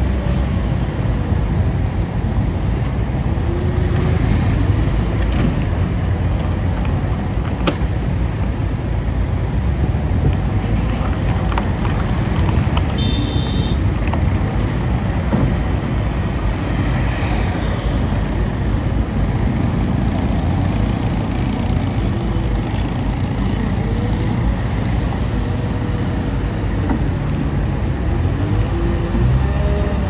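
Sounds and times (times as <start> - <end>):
bulldozer diesel engine rumbling: 0.0 - 30.0
knocks and clatters: 10.3 - 13.1, 13.8 - 27.8.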